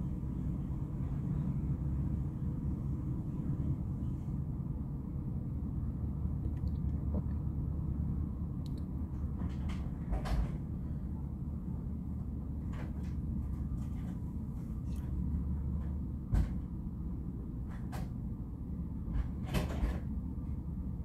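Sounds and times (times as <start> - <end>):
freight car clanks and knocks: 19.1 - 20.1.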